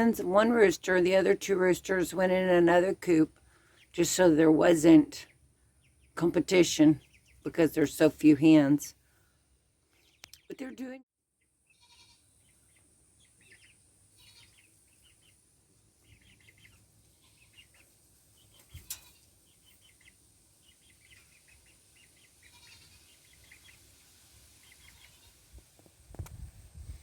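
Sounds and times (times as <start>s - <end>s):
faint bird chirps: 11.4s - 23.9s.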